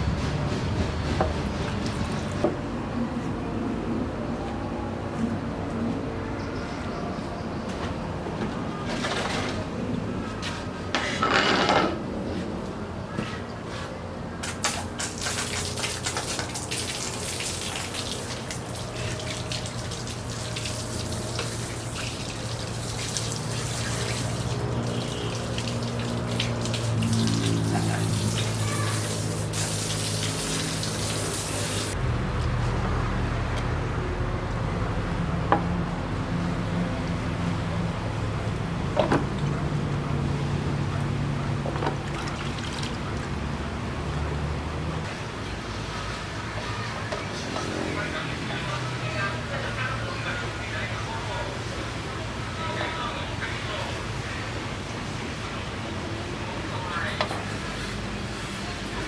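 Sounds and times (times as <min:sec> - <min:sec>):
liquid running and splashing: 0:14.4 - 0:32.0, 0:41.8 - 0:43.6.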